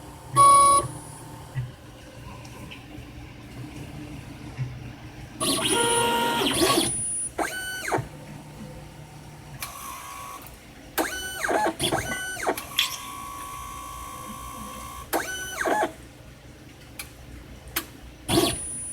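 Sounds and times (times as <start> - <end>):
steady electric hum: 0.0 - 11.0
robotic arm motor whines: 5.4 - 8.1, 14.4 - 15.9.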